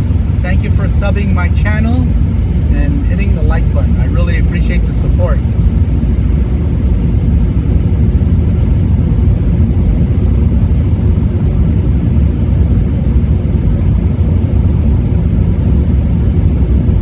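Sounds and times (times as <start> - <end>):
road noise inside car: 0.0 - 17.0.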